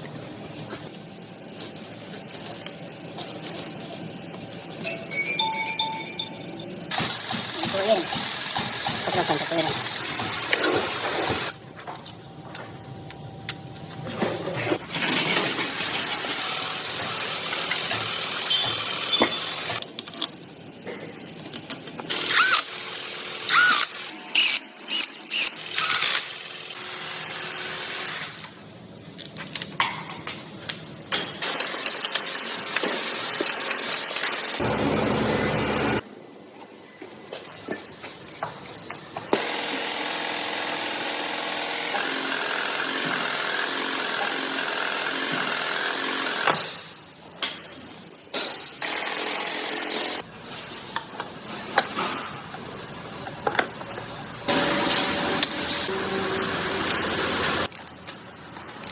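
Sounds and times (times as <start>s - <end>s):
power tools running: 6.9s - 11.6s, 15.2s - 19.8s, 22.1s - 28.5s, 31.4s - 36.0s, 39.4s - 46.6s, 54.4s - 57.8s
short tool whines: 22.2s - 22.7s, 23.5s - 26.3s.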